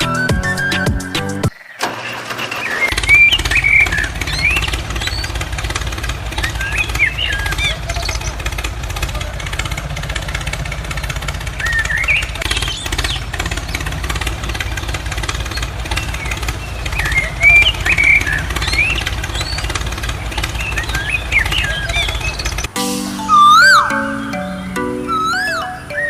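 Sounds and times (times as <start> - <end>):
tractor engine chugging: 1.8 - 26.0
bird-like chirps: 2.5 - 5.4, 6.4 - 8.5, 11.0 - 13.9, 14.6 - 26.0.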